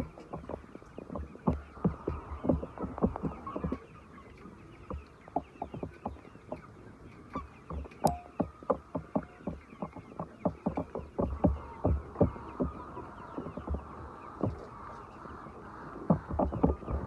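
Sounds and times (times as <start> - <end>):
chickens clucking: 0.0 - 17.0
tapping: 7.7 - 12.8.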